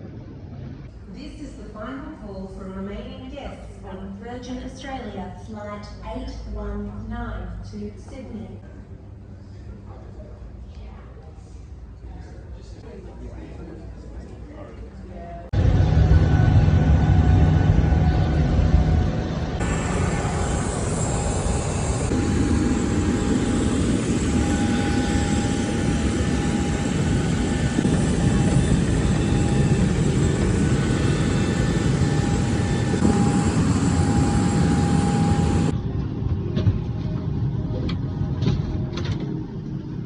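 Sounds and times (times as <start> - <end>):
loud rushing rumble: 15.6 - 35.7
jet engine whine: 15.6 - 40.0.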